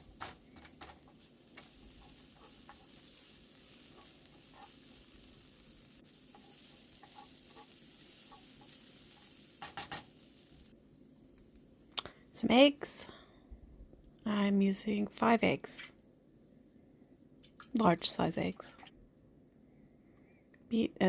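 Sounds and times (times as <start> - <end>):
food sizzling in a frying pan: 0.0 - 11.6.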